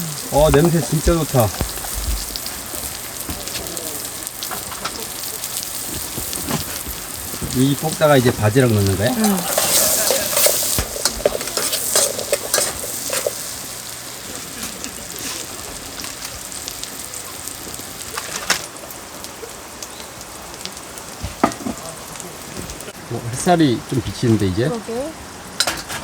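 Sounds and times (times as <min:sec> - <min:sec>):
food sizzling in a frying pan: 0:00.0 - 0:26.0
utensil scraping a pan: 0:05.6 - 0:13.6.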